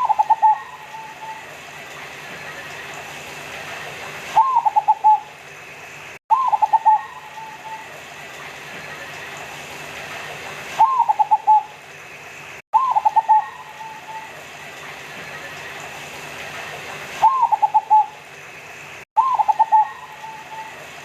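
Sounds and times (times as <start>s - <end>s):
dove cooing: 0.0s - 1.5s, 4.4s - 5.3s, 6.3s - 7.9s, 10.8s - 11.7s, 12.8s - 14.4s, 17.2s - 18.2s, 19.2s - 20.9s.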